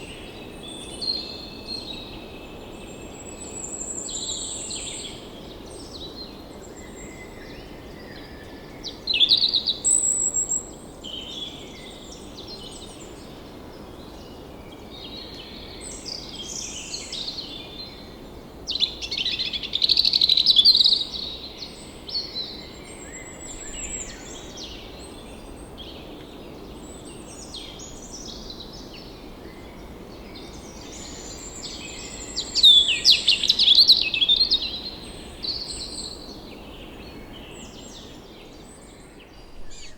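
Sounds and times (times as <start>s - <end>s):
songbirds singing and chirping: 0.0s - 39.9s
steady background hiss: 8.3s - 39.9s.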